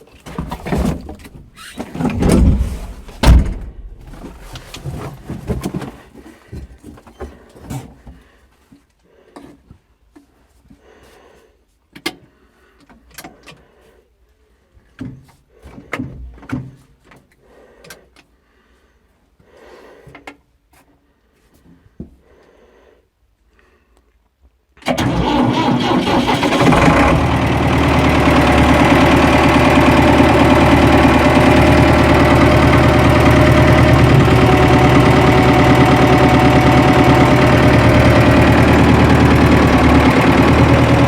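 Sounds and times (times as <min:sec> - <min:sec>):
heavy clunks and rumbling knocks: 0:00.4 - 0:06.0.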